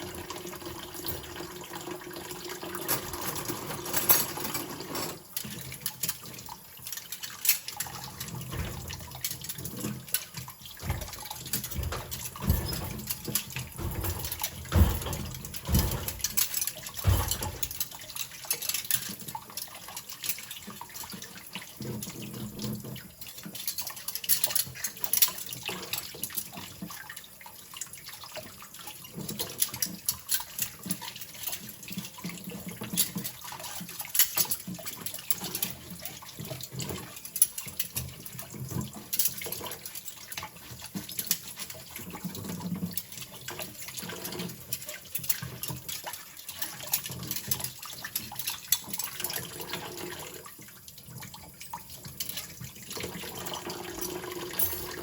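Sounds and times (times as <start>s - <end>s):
tap water running into sink: 0.0s - 55.0s
cutlery clinking: 53.4s - 55.0s.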